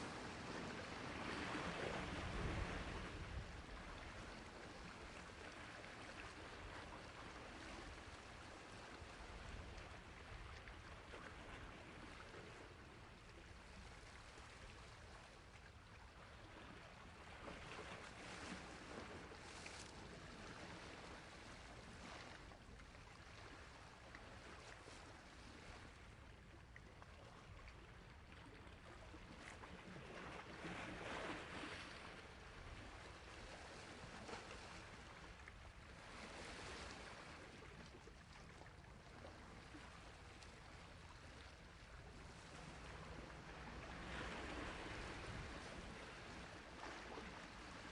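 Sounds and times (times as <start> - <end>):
sea waves washing on shore: 0.0 - 13.3, 39.7 - 47.9.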